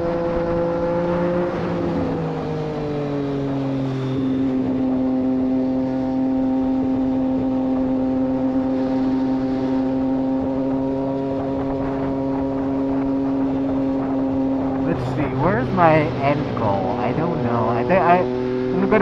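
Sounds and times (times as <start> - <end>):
motorcycle engine at steady revs: 0.0 - 19.0.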